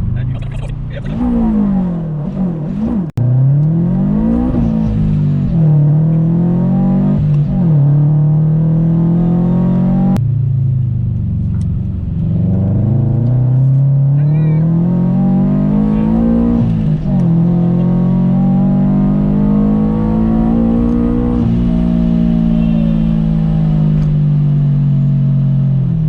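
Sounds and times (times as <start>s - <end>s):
car engine accelerating hard: 0.0s - 26.0s.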